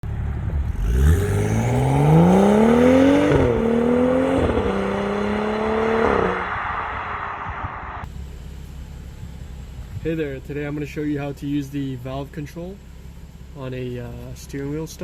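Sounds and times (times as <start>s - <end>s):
car engine accelerating hard: 0.0s - 8.2s.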